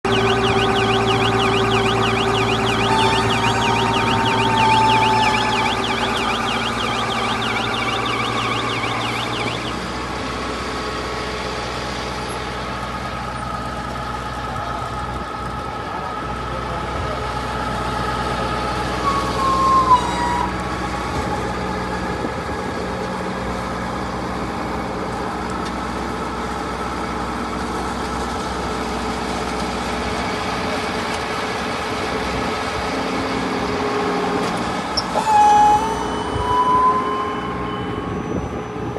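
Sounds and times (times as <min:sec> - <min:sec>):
sliding tone: 0:00.0 - 0:09.9
warbling high tone: 0:00.0 - 0:10.0, 0:35.0 - 0:38.6
baling machine humming: 0:00.0 - 0:10.3.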